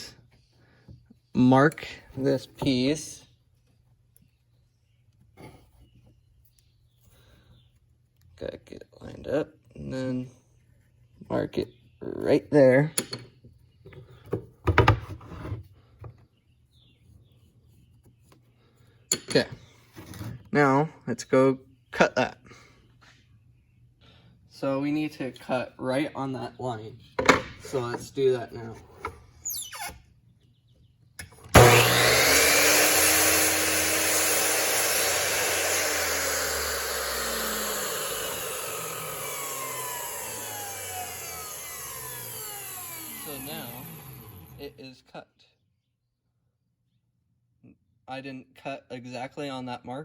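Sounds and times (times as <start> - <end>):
electric chop saw whining: 31.2 - 44.8.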